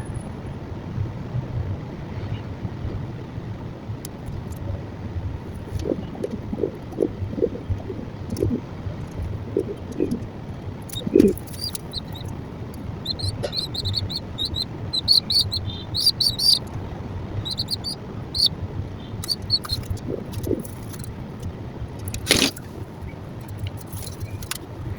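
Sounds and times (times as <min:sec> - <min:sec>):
steady low rumble: 0:00.0 - 0:24.9
small bird chirping: 0:05.5 - 0:10.3, 0:10.9 - 0:16.8, 0:17.4 - 0:21.1.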